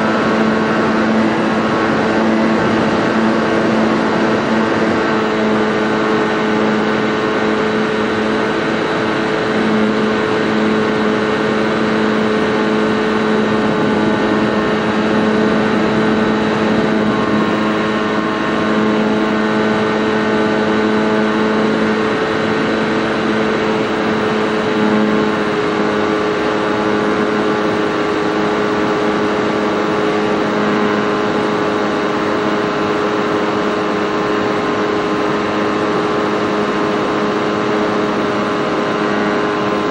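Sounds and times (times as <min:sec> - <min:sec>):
model airplane motor and propeller: 0:00.0 - 0:39.9.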